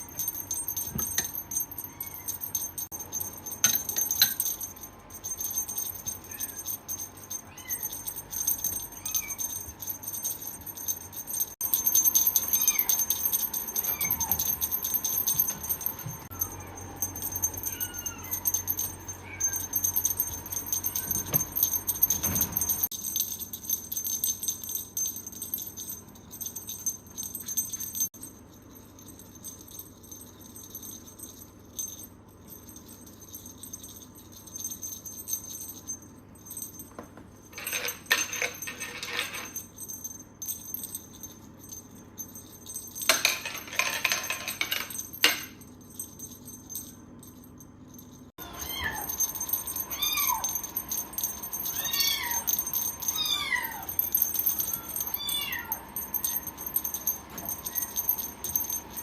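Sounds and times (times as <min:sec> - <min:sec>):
cat meowing: 0:55.2 - 0:55.8.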